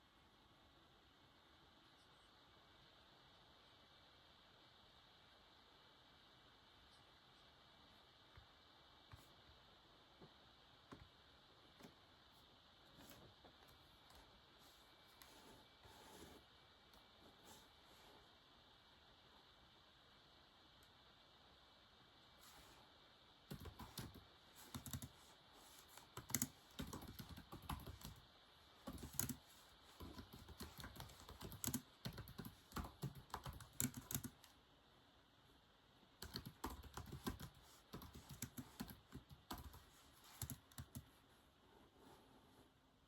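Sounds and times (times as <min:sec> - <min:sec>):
typing on a keyboard: 0:23.5 - 0:25.2, 0:25.9 - 0:28.2, 0:28.8 - 0:34.6, 0:36.2 - 0:41.1.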